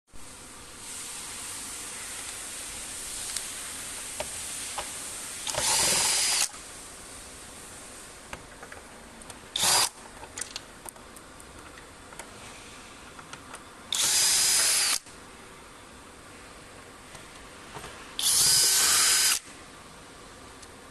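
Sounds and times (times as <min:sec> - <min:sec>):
steady hiss: 0:00.2 - 0:11.3, 0:11.9 - 0:20.9
electric drill-driver running: 0:05.5 - 0:06.5, 0:09.6 - 0:10.0, 0:13.9 - 0:15.0, 0:18.2 - 0:19.4.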